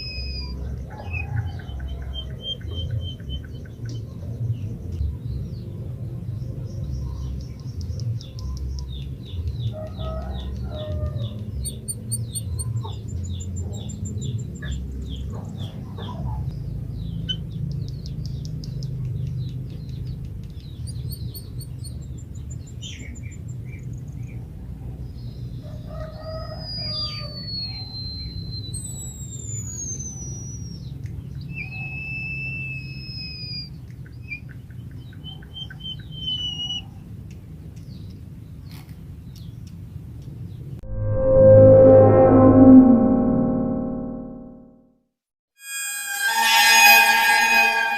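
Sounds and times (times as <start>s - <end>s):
bird long thin whistles: 0.0s - 0.6s, 26.3s - 30.9s, 31.5s - 33.7s
bird ticking notes: 7.6s - 15.0s.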